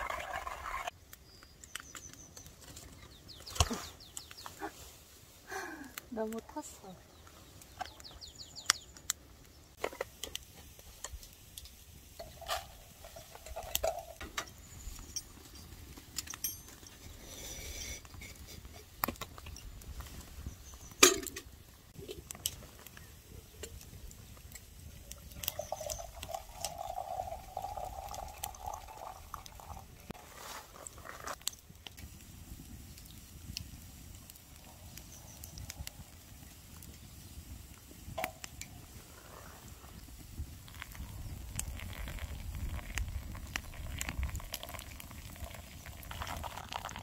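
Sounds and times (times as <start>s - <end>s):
liquid sounds: 0.0s - 0.9s, 25.3s - 31.3s, 40.7s - 47.0s.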